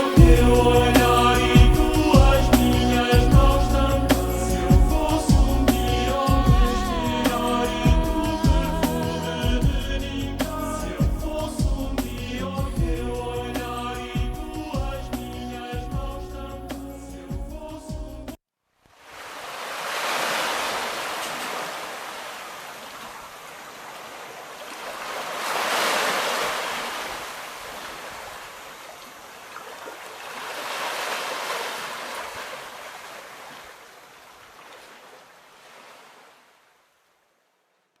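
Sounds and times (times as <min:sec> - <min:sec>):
waves breaking on shore: 0:18.9 - 0:36.8.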